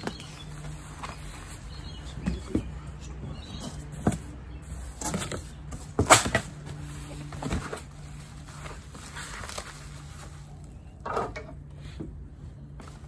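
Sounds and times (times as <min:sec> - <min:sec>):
bubble wrap crinkling: 0:07.0 - 0:10.8.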